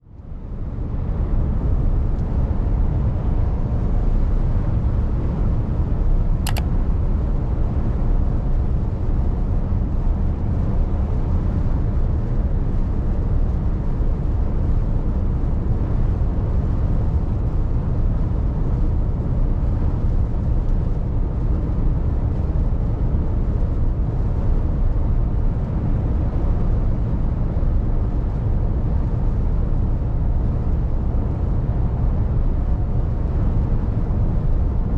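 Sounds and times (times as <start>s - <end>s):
brief click: 6.5s - 6.7s.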